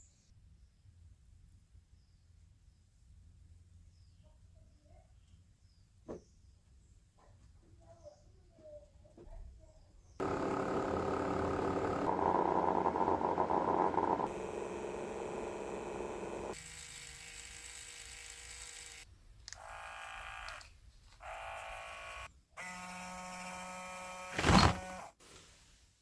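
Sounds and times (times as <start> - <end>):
small electric motor whine: 10.2 - 25.1.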